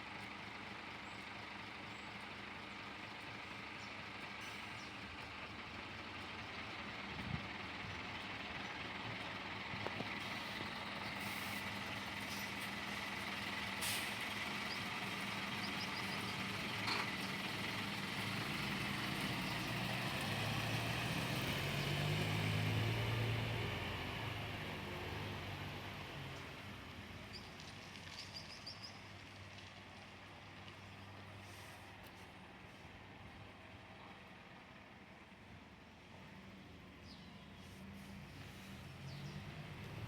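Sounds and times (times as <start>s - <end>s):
bus diesel engine running: 0.0s - 40.0s
air brake hiss: 13.8s - 14.2s.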